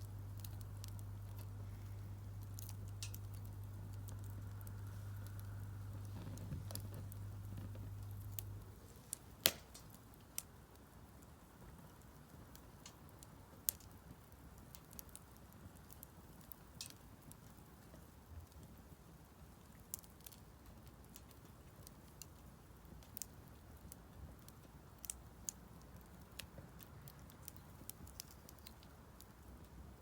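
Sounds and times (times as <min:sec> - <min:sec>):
low steady hum: 0:00.0 - 0:11.5
firewood crackling and popping: 0:00.0 - 0:30.0.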